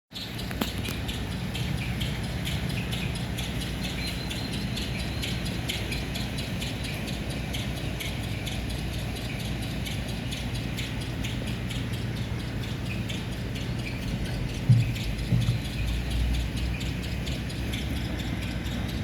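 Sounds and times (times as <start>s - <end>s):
small birds chirping: 0.1s - 19.0s
low mechanical hum: 0.2s - 19.0s.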